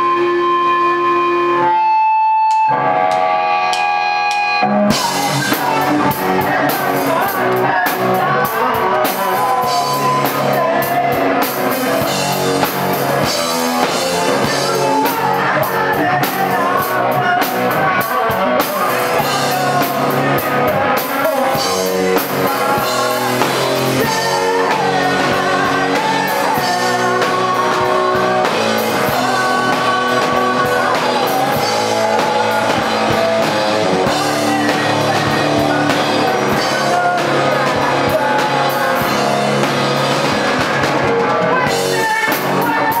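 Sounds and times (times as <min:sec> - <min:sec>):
drum kit: 0:00.0 - 0:43.0
electric guitar: 0:00.0 - 0:43.0.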